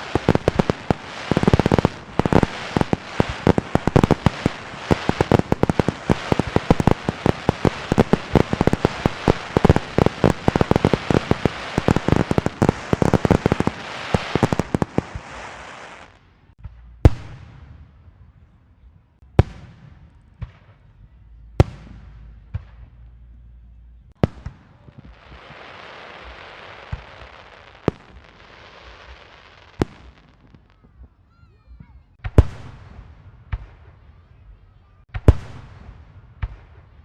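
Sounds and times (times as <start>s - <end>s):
loud bangs with echo: 0.0s - 15.4s
firecrackers popping rapidly: 0.0s - 17.6s, 24.1s - 31.2s.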